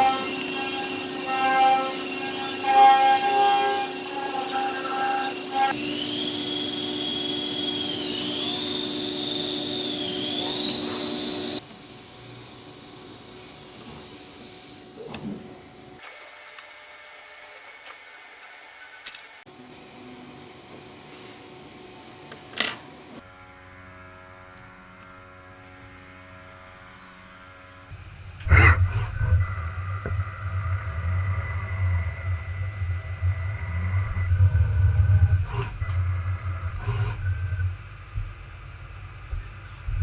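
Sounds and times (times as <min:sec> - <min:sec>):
machine hum: 0:00.0 - 0:23.2, 0:29.2 - 0:39.0
machine whine: 0:00.0 - 0:40.0
machine rumbling: 0:28.4 - 0:40.0.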